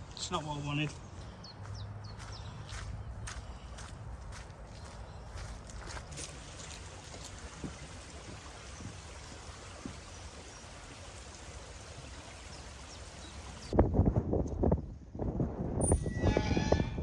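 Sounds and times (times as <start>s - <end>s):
running water rushing: 6.2s - 13.8s.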